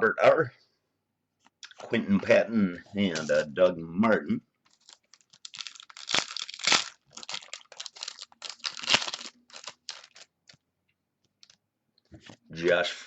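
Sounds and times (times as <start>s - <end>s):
card pack wrapper tearing and crinkling: 4.7s - 10.6s.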